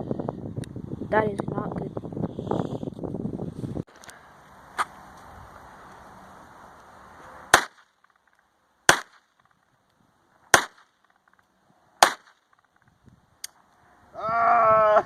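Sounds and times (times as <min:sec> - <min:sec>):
gunshots: 0:07.5 - 0:08.0, 0:08.9 - 0:09.3, 0:10.5 - 0:11.0, 0:12.0 - 0:12.5.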